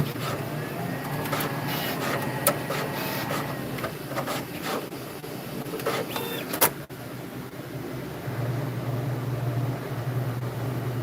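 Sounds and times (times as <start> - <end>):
mechanical whirs: 0.0 - 5.0, 5.6 - 6.9
low steady hum: 6.8 - 11.0.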